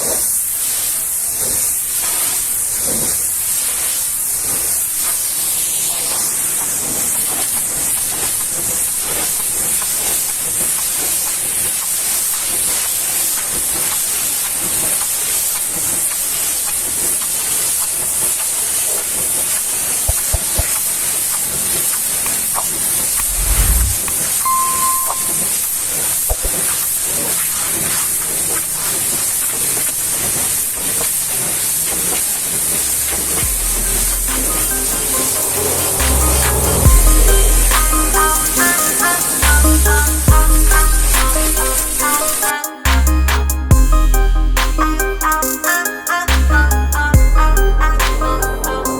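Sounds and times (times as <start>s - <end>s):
pressure washer spraying: 0.2s - 24.3s, 26.0s - 43.7s
low thumps: 23.2s - 24.1s
brief high tone: 23.2s - 25.6s, 33.5s - 48.9s.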